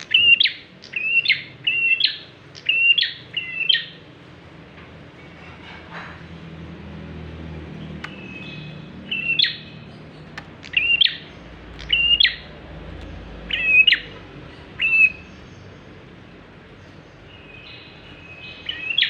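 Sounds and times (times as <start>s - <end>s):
prinia calling: 7.8s - 19.0s.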